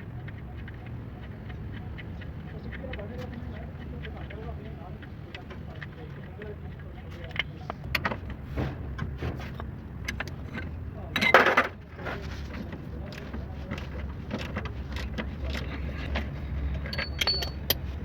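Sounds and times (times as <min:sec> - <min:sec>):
metallic clicks and clinks: 0:16.7 - 0:17.9.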